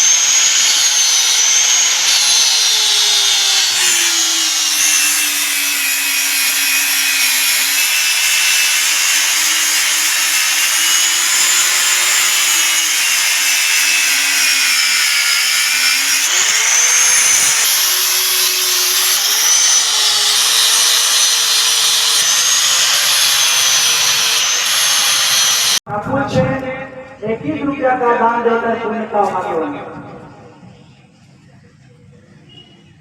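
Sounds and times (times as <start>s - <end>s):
electric grinder grinding steel: 0.0s - 25.8s.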